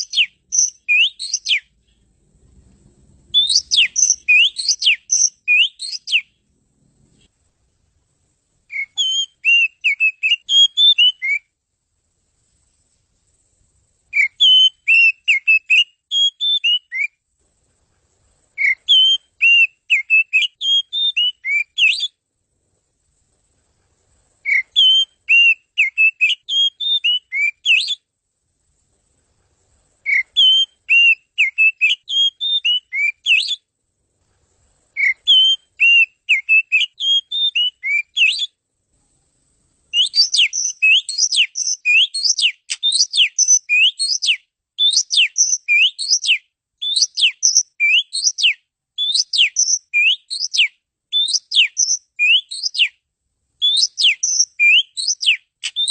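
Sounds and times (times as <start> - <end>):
bird singing warbling whistles: 0.0 - 1.7, 3.3 - 6.4, 8.7 - 11.5, 14.1 - 17.2, 18.6 - 22.2, 24.4 - 28.1, 30.0 - 33.7, 35.0 - 38.6, 39.9 - 53.0, 53.6 - 55.9.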